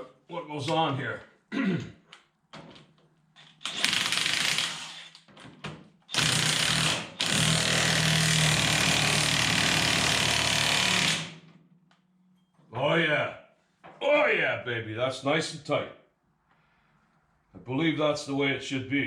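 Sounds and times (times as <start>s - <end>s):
impact wrench running: 3.6s - 5.2s, 6.1s - 11.4s.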